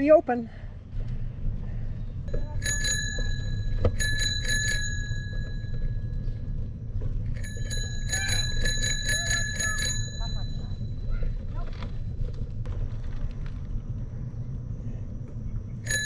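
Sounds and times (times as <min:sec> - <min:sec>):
bicycle bell ringing: 0:02.3 - 0:06.1, 0:07.3 - 0:11.1.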